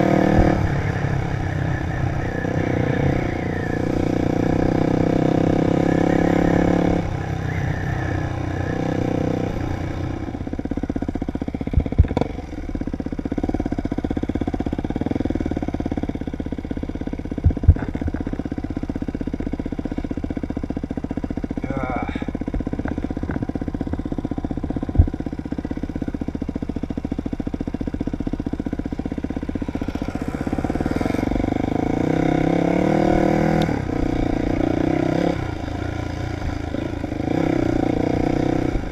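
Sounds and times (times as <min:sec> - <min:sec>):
dirt bike engine revving: 0:00.0 - 0:10.6, 0:28.9 - 0:38.9.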